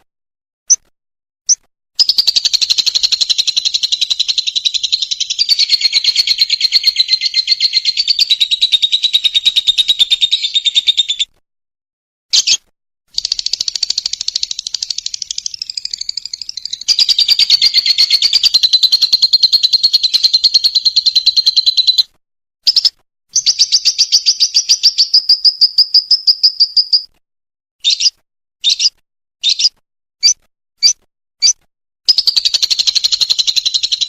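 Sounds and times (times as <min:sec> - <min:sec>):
lovebird rattling trills: 0:02.0 - 0:09.6, 0:13.2 - 0:22.0.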